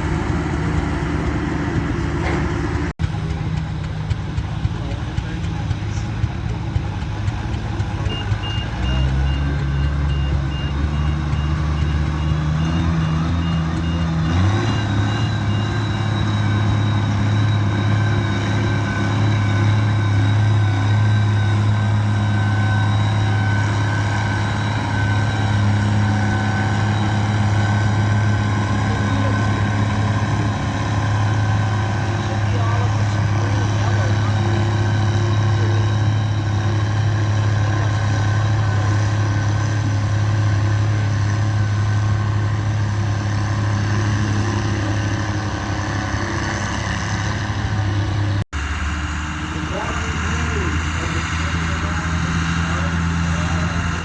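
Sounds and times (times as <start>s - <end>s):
heavy engine idling and revving: 0.0s - 54.0s
reversing alarm beeping: 7.7s - 48.4s.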